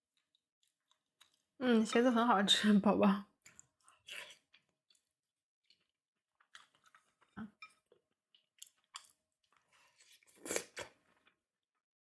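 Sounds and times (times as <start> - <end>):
chewing food with crunches: 0.0 - 1.6, 3.4 - 11.5.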